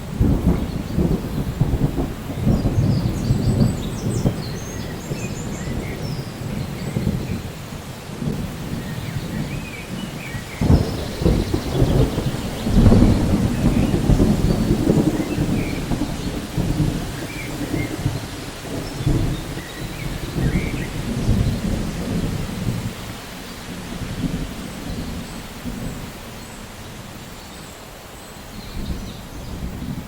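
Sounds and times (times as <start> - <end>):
rolling thunder: 0.0 - 23.1
steady rain: 0.0 - 30.0.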